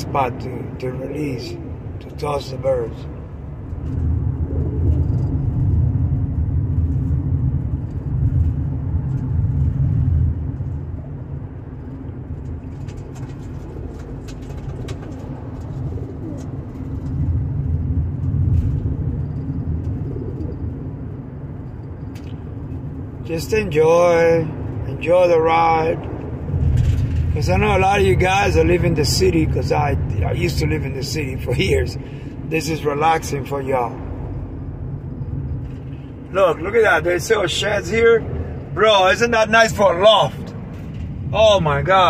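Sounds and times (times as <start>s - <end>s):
car road rumble from inside: 0.0s - 42.0s
pigeons cooing faintly: 1.2s - 2.2s, 13.0s - 16.7s, 18.9s - 20.9s.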